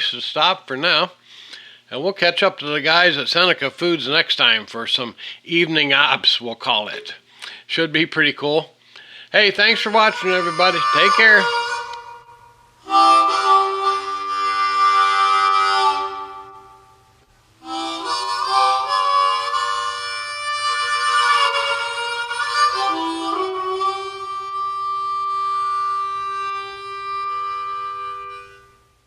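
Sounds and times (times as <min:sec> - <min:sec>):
harmonica playing chords: 0:09.0 - 0:29.0.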